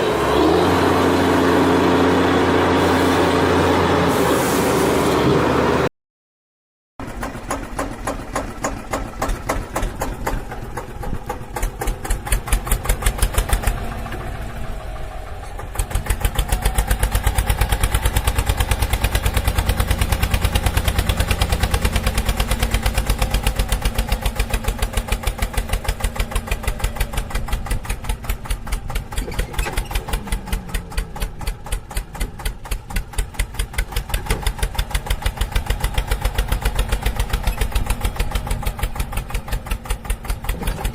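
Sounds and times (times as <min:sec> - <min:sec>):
diesel tractor engine running: 0:00.0 - 0:05.9, 0:07.0 - 0:40.9.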